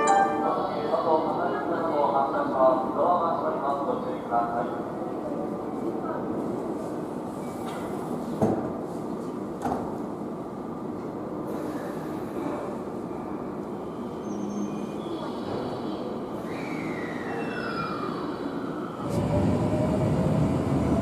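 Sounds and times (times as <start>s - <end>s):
electric train rumbling: 10.2s - 21.0s.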